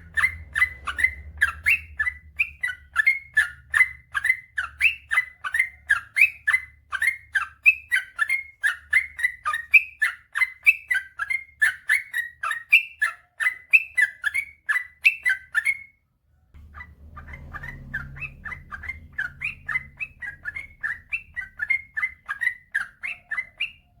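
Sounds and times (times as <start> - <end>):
bird chirping song: 0.0 - 24.0
faint low hum: 16.0 - 24.0.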